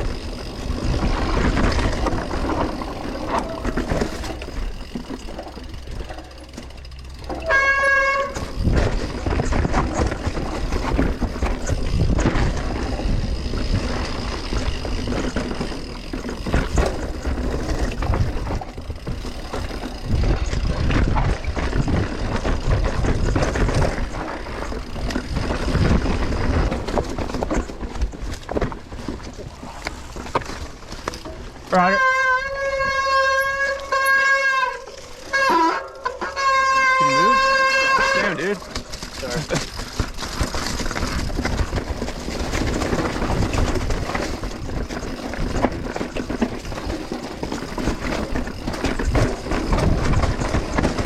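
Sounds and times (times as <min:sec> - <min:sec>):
bike rattling over bumps: 0:00.0 - 0:51.0
bike tyres on dirt: 0:00.0 - 0:51.0
wind on microphone: 0:08.4 - 0:15.2, 0:16.6 - 0:27.0.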